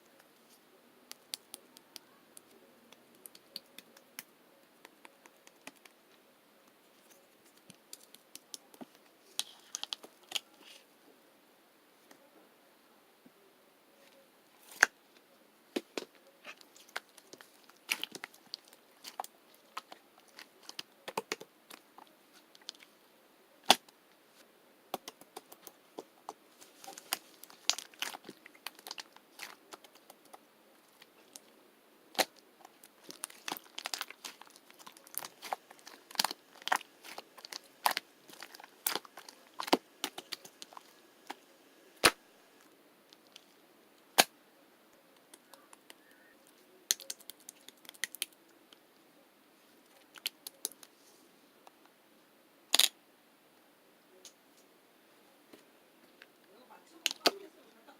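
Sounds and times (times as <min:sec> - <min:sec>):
slime squishing and popping: 0:15.8 - 0:21.8, 0:24.9 - 0:31.5, 0:32.1 - 0:41.4, 0:46.9 - 0:48.3.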